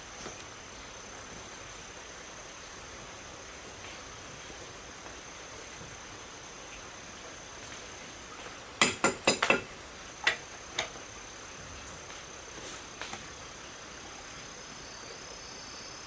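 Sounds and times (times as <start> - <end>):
metal clinks of tools: 8.8 - 9.7.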